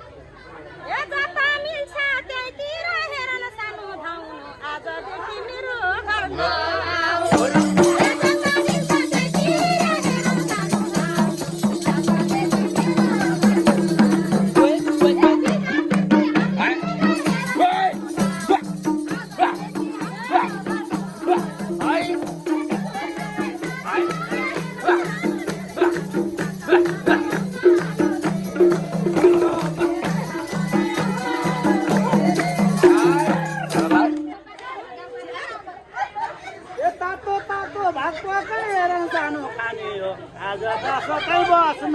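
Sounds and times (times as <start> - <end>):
quick percussion strikes: 7.2 - 34.4
folk music: 20.6 - 34.3.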